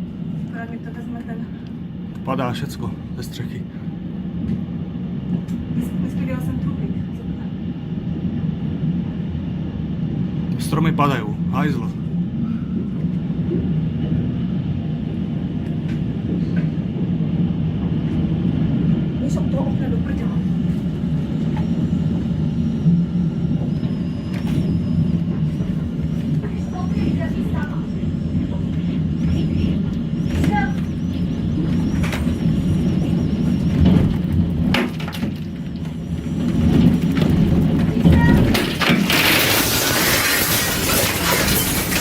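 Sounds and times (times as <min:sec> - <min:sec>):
tornado winds roaring: 0:00.0 - 0:42.0
debris striking crack: 0:36.6 - 0:42.0.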